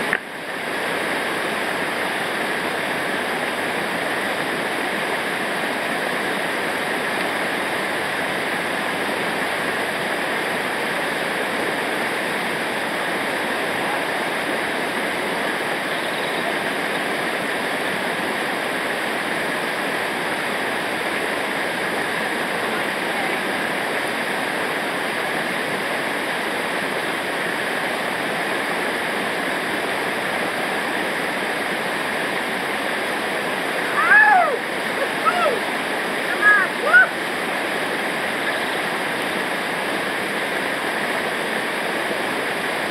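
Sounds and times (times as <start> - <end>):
river water rushing over rapids: 0.0 - 42.9.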